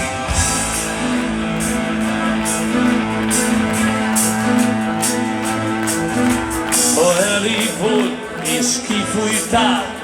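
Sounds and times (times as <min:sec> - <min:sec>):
rock band playing instrumental: 0:00.0 - 0:10.0.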